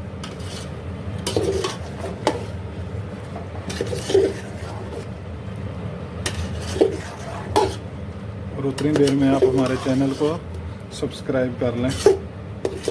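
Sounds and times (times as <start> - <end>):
ladle scraping a pot: 0.2 - 2.6, 3.6 - 5.2, 6.3 - 7.9, 8.7 - 10.5, 11.8 - 12.9.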